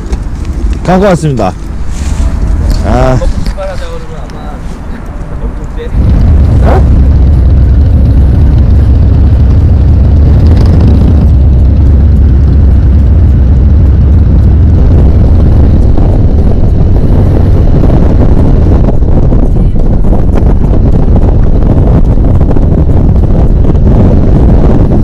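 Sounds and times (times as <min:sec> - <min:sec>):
motorcycle engine rumbling: 0:00.0 - 0:25.0
wind buffeting microphone: 0:00.0 - 0:25.0.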